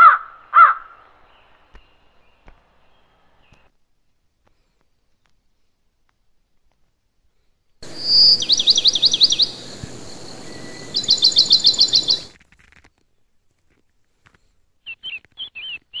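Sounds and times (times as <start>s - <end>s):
songbird singing: 0.0s - 3.7s, 7.8s - 12.4s, 14.8s - 16.0s
quiet bird chirps: 0.9s - 3.7s, 7.8s - 12.4s, 14.8s - 16.0s.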